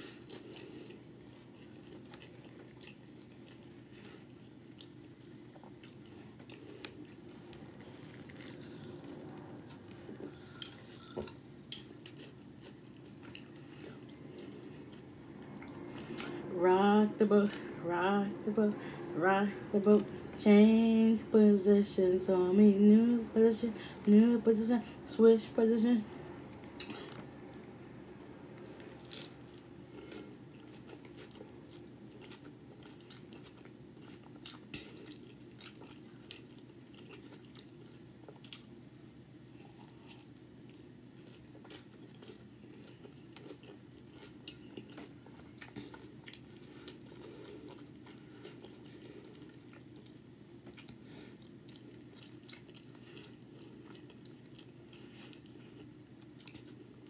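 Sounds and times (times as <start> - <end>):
chewing and crunching food: 0.0 - 16.5, 28.5 - 57.0
steady low hum: 0.0 - 57.0.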